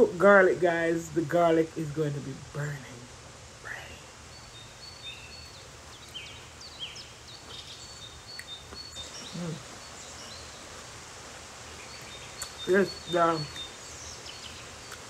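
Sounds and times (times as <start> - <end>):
birds chirping: 0.0 - 15.0
steady hiss: 0.0 - 15.0
person humming: 9.0 - 9.8.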